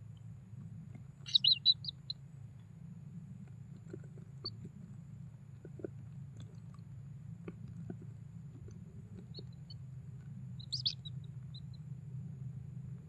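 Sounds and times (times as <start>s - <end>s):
steady low hum: 0.0s - 13.0s
bird chirping: 1.2s - 2.2s, 9.2s - 9.8s, 10.6s - 11.9s.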